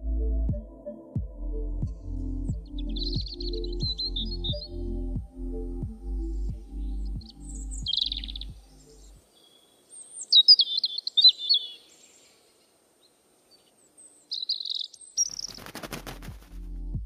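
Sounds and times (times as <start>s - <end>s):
bass-heavy music beat: 0.0s - 9.2s, 16.2s - 17.0s
high bird chirps: 2.6s - 12.4s, 13.5s - 15.7s.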